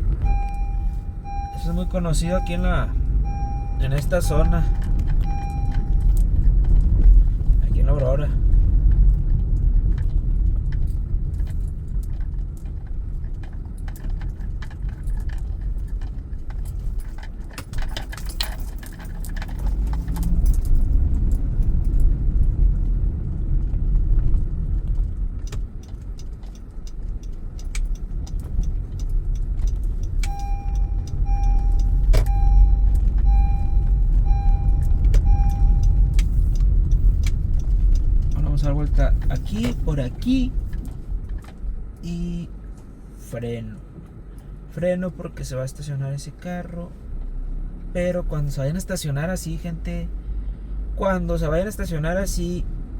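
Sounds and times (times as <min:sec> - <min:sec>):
road and engine rumble: 0:00.0 - 0:52.9
turn-signal indicator beeps: 0:00.2 - 0:06.3, 0:29.7 - 0:37.1
rattling and jangling: 0:09.1 - 0:22.2.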